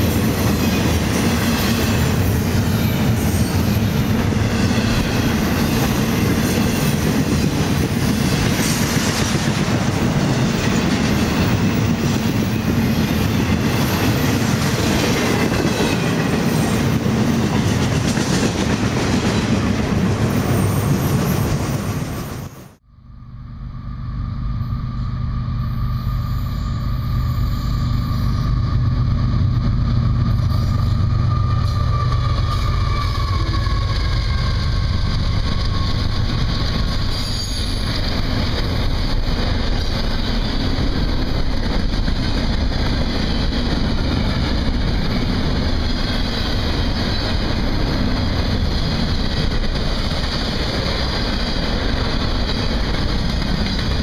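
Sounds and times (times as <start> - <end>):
freight train wheels rumbling on rail: 0.0 - 22.9, 23.5 - 54.0
high wheel squeal: 23.8 - 29.6, 30.2 - 41.4.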